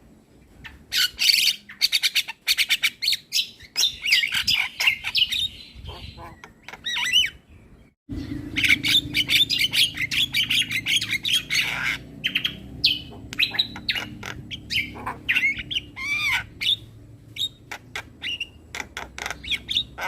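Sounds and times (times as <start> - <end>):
starling chattering and whistling: 8.2 - 20.0.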